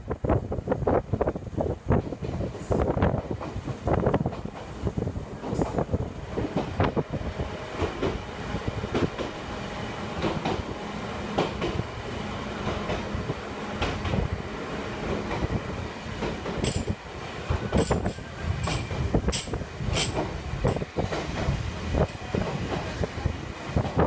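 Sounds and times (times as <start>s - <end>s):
train running gear rumble: 0.0s - 24.0s
wheel clacks over rail joints: 16.1s - 23.0s.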